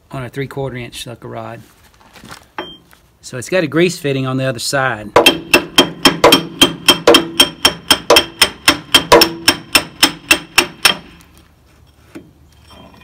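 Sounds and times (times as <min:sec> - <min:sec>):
hammer striking steel: 0:05.2 - 0:11.2.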